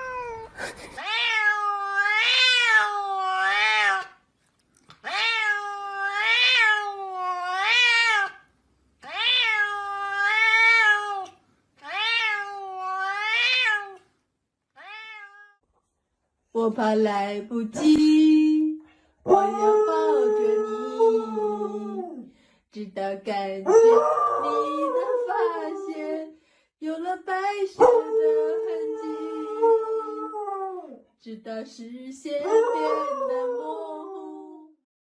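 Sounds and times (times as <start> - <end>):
cat meowing: 0.0 - 4.2, 5.0 - 14.1, 14.8 - 15.6.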